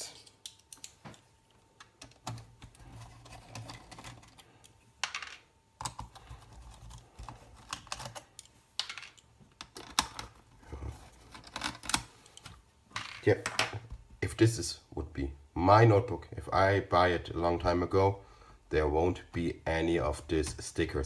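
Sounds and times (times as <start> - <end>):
laptop parts clicking and knocking: 0.2 - 5.2, 5.8 - 10.4, 11.2 - 13.9.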